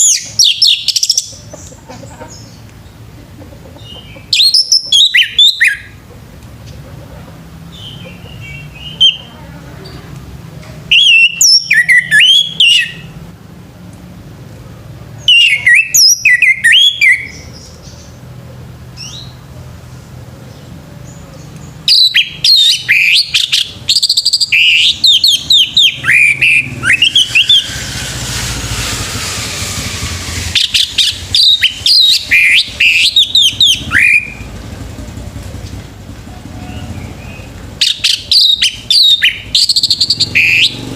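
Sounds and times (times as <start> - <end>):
thrush singing fluting whistles: 0.0 - 1.3, 4.3 - 6.0, 10.9 - 13.2, 15.2 - 17.4, 21.8 - 34.5, 36.6 - 40.9.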